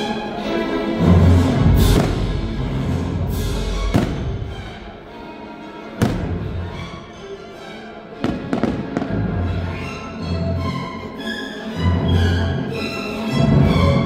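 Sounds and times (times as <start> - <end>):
orchestral music: 0.0 - 14.0
firework bangs: 1.8 - 2.8, 3.8 - 4.8, 6.0 - 6.8, 8.2 - 9.3.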